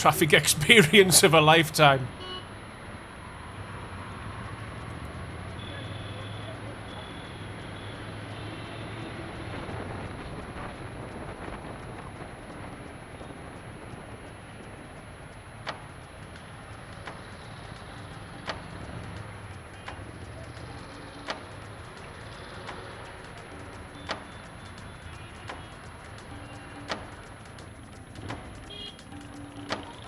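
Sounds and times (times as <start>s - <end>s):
road noise: 0.0s - 30.0s
sharp regular clicks: 4.0s - 5.7s, 13.6s - 30.0s.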